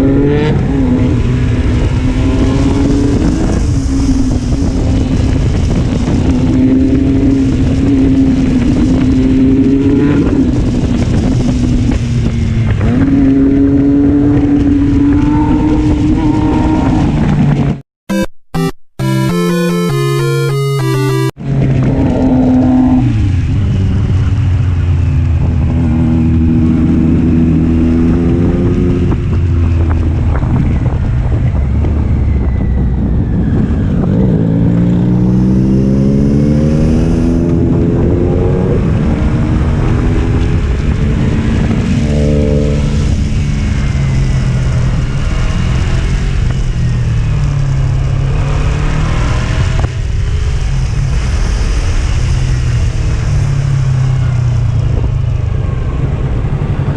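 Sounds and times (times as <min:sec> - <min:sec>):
motorcycle engine revving: 0:33.3 - 0:54.4.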